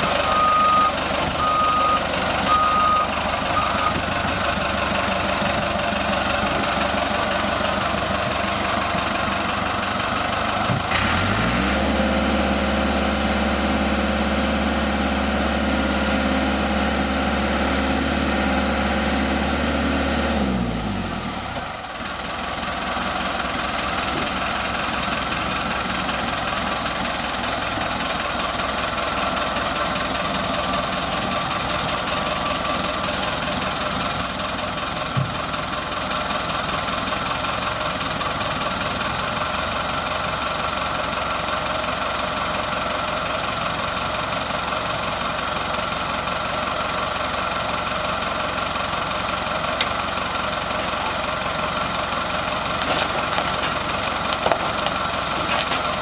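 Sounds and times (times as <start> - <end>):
train rumbling: 49.7 - 56.0.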